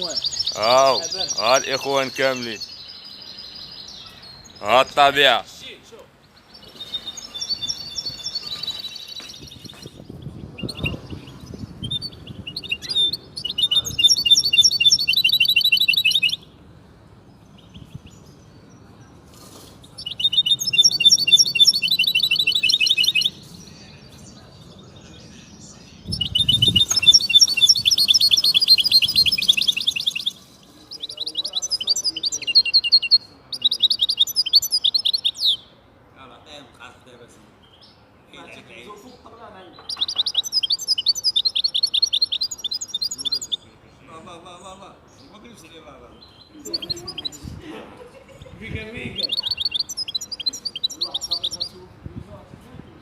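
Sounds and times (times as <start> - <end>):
goldfinch twittering song: 0.0 - 5.4, 6.2 - 16.6, 19.8 - 35.7, 39.7 - 43.6, 46.2 - 47.5, 48.9 - 51.8.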